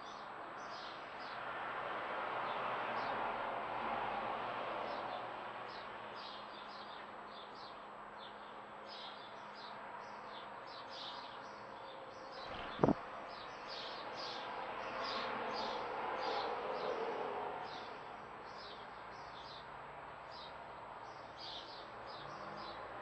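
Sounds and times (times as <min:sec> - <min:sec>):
songbirds chirping: 0:05.7 - 0:16.5, 0:17.7 - 0:23.0.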